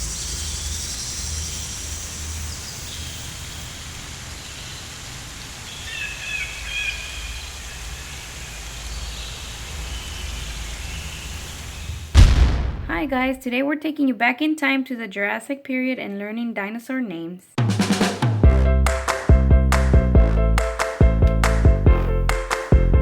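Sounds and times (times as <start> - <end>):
rushing noise like rain: 0.0 - 12.3
low rumble: 12.0 - 13.4.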